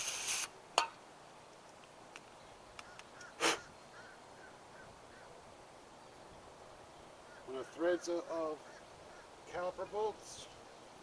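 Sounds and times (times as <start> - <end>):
aerosol spray can hiss: 0.0 - 0.5.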